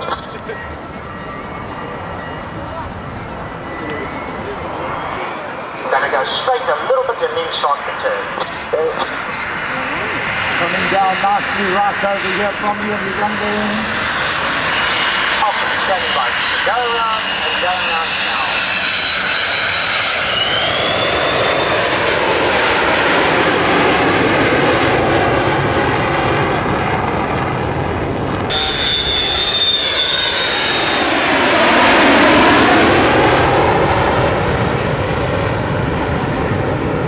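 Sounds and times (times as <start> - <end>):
aircraft engines roaring with whine: 0.0 - 37.0.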